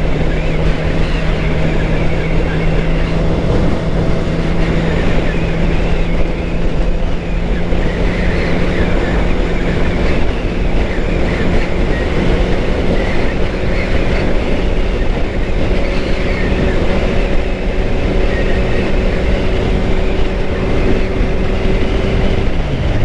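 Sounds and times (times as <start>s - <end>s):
motorcycle engine cruising: 0.0s - 23.0s
wind noise on microphone: 0.0s - 23.0s.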